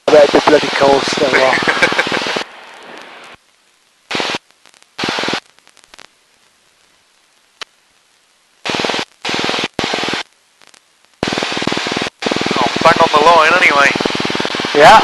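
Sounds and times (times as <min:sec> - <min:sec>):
aircraft cockpit engine noise: 0:00.0 - 0:03.4, 0:08.7 - 0:15.0.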